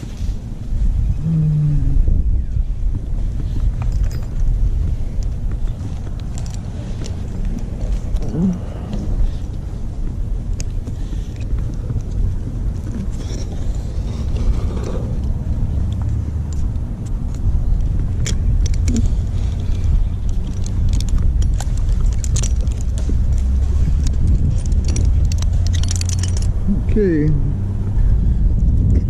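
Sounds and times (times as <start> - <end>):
low rumble: 0.0 - 29.0
light clicks and clinks: 3.5 - 9.6, 18.2 - 26.6.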